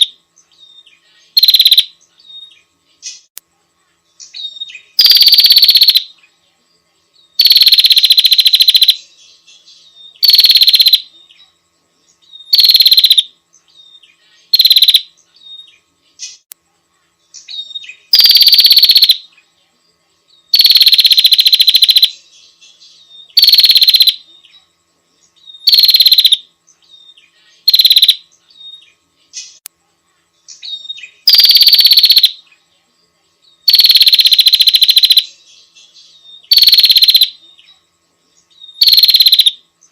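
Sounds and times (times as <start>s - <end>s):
bird rattling trills: 25.6s - 26.4s, 36.5s - 37.3s, 38.8s - 39.6s.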